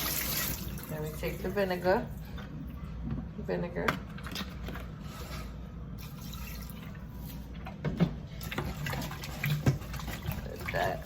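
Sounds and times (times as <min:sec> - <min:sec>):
liquid pouring and splashing: 0:00.0 - 0:01.0, 0:06.0 - 0:07.5, 0:08.3 - 0:11.0.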